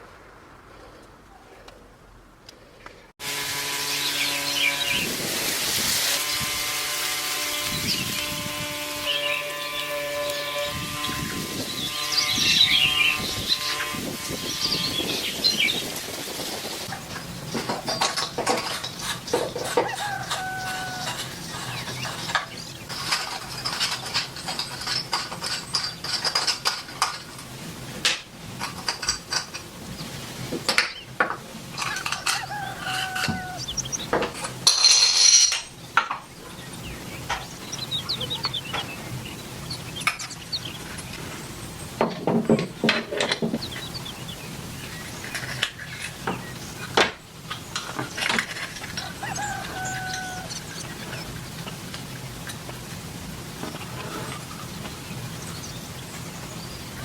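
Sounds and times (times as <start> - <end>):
chickens clucking: 16.7 - 26.5, 31.8 - 34.9, 36.0 - 52.8, 53.6 - 56.2
metal parts clinking: 34.7 - 36.1.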